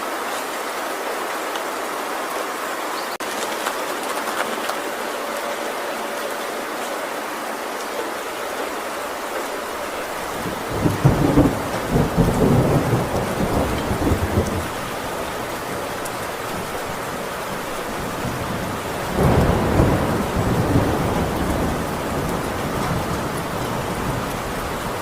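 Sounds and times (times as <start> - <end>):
heavy rain on tin roof: 0.0 - 25.0
thunder rumbling: 8.6 - 25.0.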